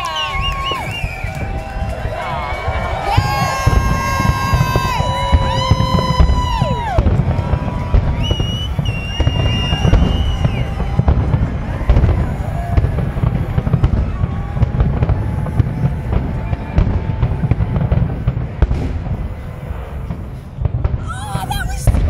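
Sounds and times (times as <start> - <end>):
fireworks booms and crackles: 0.0 - 22.0.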